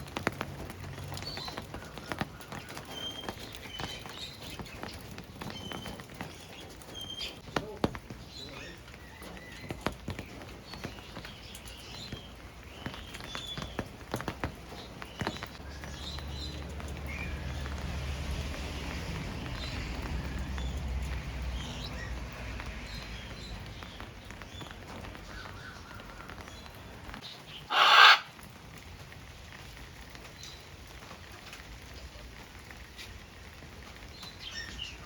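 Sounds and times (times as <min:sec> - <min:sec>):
parrots chirping and calling: 0:27.6 - 0:28.4.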